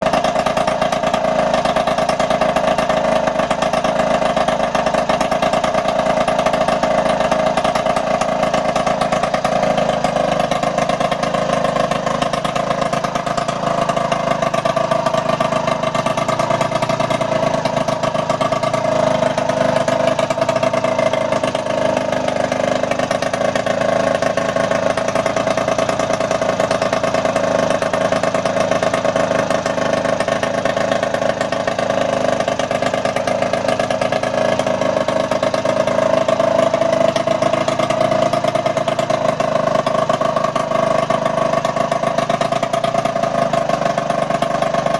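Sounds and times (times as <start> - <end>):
small engine running steadily: 0.0 - 44.9.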